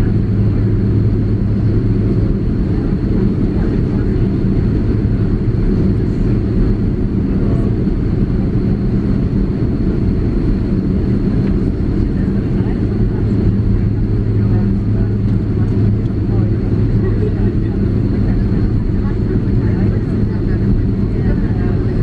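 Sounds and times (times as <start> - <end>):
airplane cabin drone: 0.0 - 22.0.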